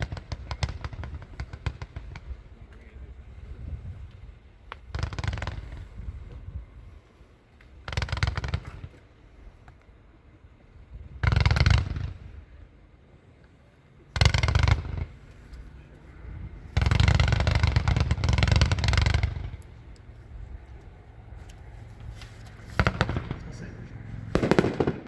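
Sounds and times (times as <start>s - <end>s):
fireworks firing in rapid volleys: 0.0s - 6.5s, 7.6s - 9.2s, 10.2s - 12.7s, 14.0s - 20.2s, 22.6s - 25.0s.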